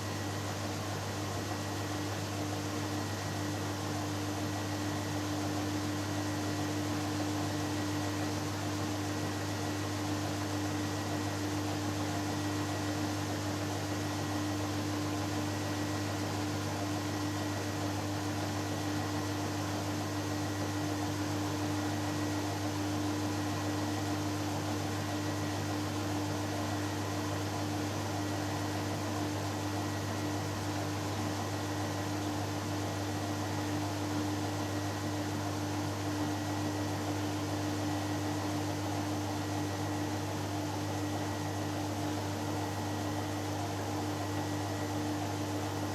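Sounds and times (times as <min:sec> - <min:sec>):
washing machine spinning: 0:34.6 - 0:45.9.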